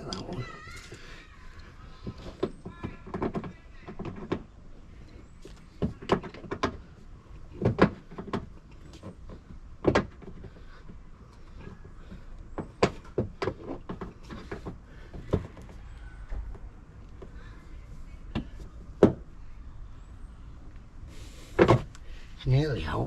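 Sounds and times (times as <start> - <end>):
car body parts clicking and knocking: 2.0 - 4.6, 5.4 - 17.4, 18.3 - 19.3.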